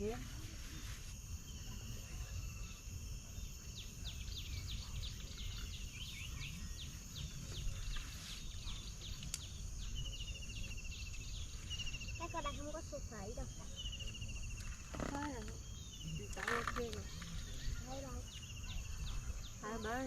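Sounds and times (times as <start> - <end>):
high insect drone: 0.0 - 20.0
bird chirping: 1.4 - 20.0.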